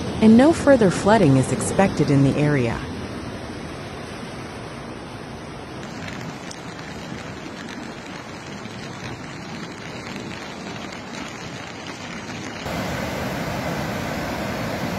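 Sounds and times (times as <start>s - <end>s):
water hissing: 12.7s - 14.9s.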